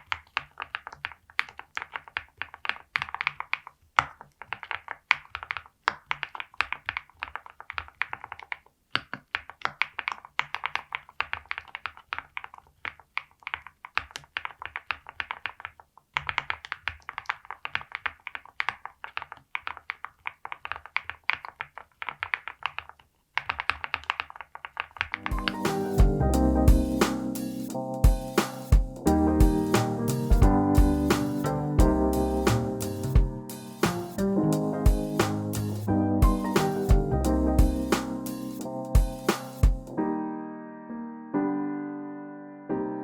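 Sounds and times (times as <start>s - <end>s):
mechanical keyboard typing: 0.0s - 26.1s.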